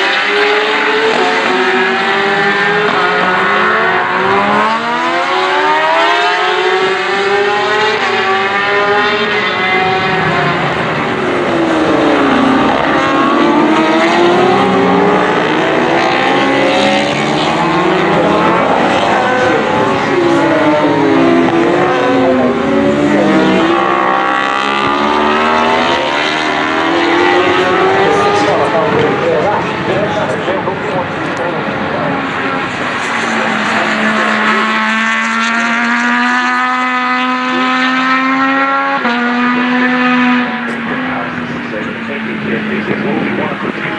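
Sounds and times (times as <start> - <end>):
racing motorcycles passing: 0.0 - 43.9.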